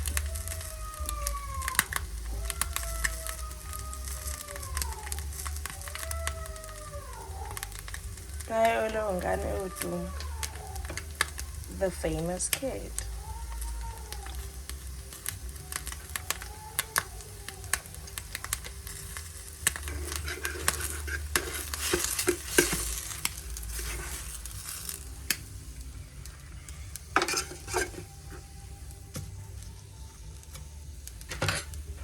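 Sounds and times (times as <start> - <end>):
food sizzling in a frying pan: 0.0 - 32.0
utensil scraping a pan: 18.6 - 25.1, 27.1 - 28.6.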